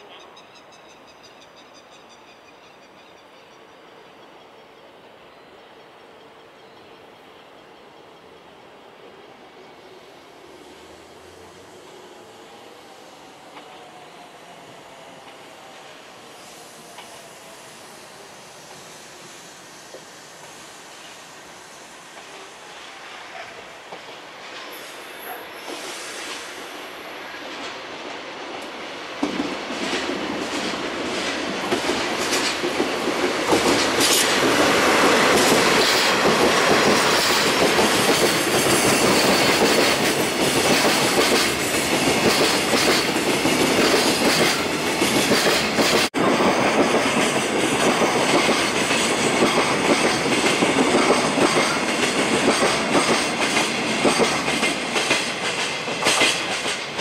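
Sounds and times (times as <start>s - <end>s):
diesel locomotives passing: 0.0s - 57.0s
flatcars clattering over rail joints: 28.5s - 57.0s.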